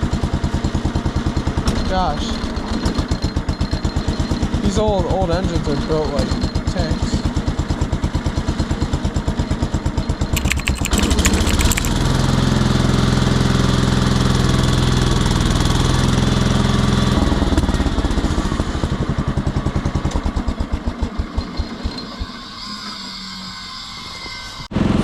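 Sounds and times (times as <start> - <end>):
tractor engine chugging: 0.0 - 12.2
engine rattle: 0.0 - 21.8.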